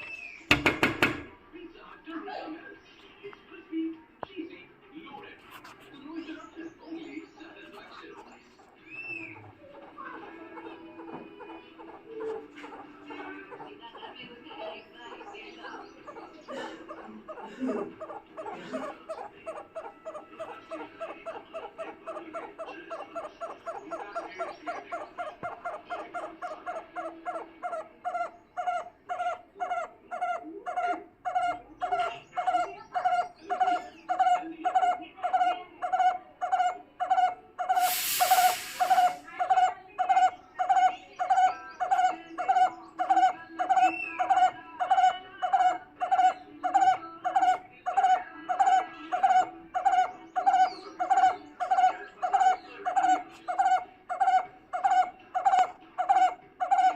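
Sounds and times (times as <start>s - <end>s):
bird calling: 5.5s - 56.9s
burst of hiss: 37.8s - 39.3s.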